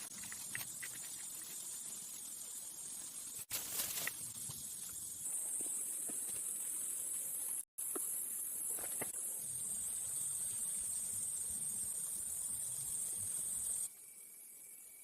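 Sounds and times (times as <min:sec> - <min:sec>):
high-pitched insect drone: 0:09.3 - 0:15.0.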